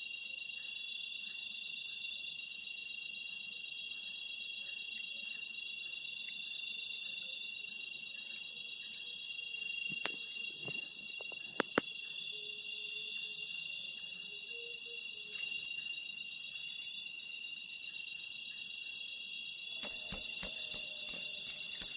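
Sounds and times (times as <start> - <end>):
night insects chorus: 0.0 - 21.9
sharp clicks: 19.8 - 21.9.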